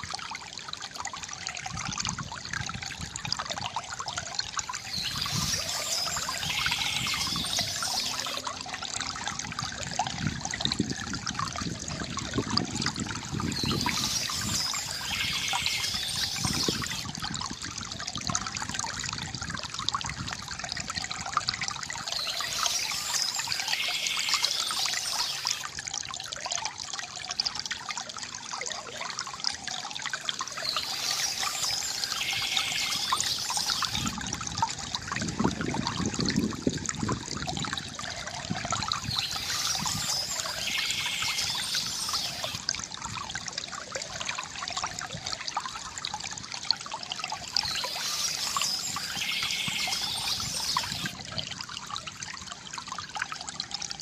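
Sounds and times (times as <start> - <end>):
river water babbling over stones: 2.8 - 10.0, 11.0 - 18.0, 20.1 - 35.7, 36.7 - 54.0
hissing water layer: 4.6 - 8.5, 13.2 - 17.2, 21.9 - 25.8, 30.4 - 34.4, 38.9 - 42.7, 47.2 - 51.2.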